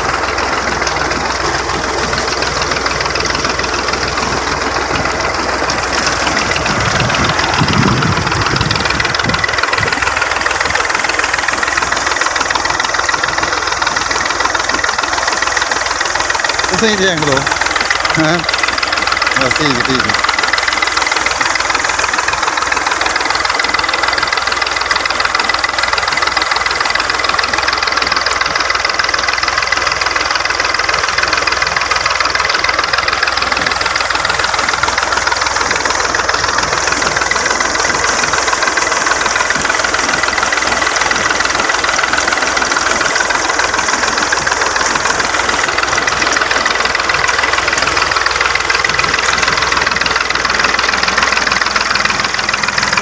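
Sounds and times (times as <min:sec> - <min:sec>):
tractor engine running: 0:00.0 - 0:53.0.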